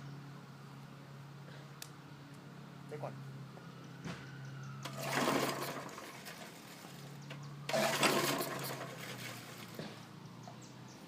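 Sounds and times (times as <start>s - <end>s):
lawn mower starter cord pull: 4.8s - 10.0s.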